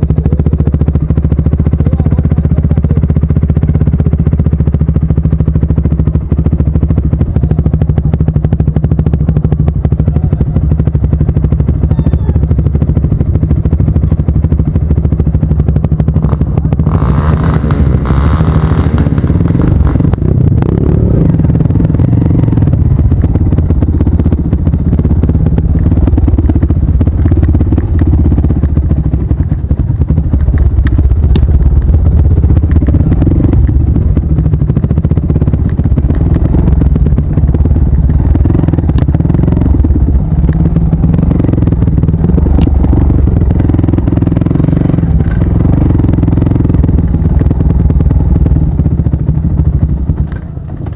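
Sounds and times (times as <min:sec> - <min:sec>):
clatter: 0:00.0 - 0:50.9
motorcycle engine: 0:00.0 - 0:50.9.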